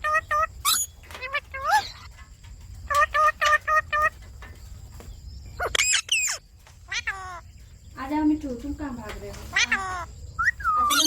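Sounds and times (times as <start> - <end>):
parakeet high screeches: 0.0 - 2.1, 5.6 - 7.4, 9.5 - 11.0
parakeet squawks: 0.0 - 2.1, 2.9 - 4.1, 5.6 - 7.4, 9.5 - 11.0.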